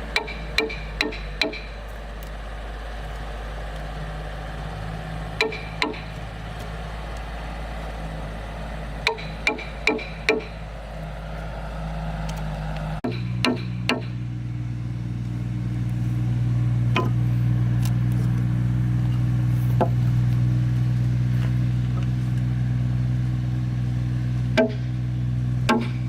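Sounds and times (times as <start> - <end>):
motor humming steadily: 0.0 - 26.0
sharp knocks: 0.2 - 1.8, 5.4 - 6.1, 9.0 - 10.6, 13.0 - 14.2, 24.6 - 25.0, 25.7 - 26.0.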